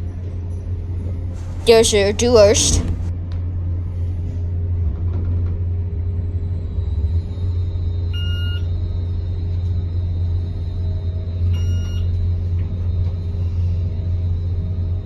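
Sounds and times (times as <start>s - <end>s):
elevator car low drone: 4.2s - 11.7s.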